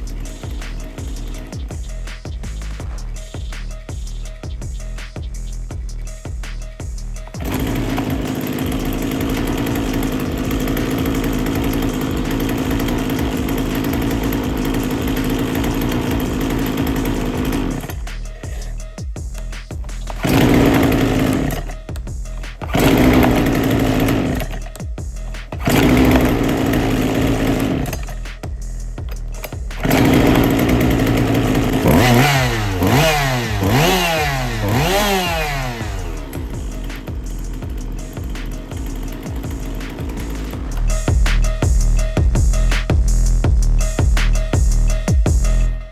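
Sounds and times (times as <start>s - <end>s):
two-stroke chainsaw running: 0.0s - 4.0s, 5.7s - 45.9s.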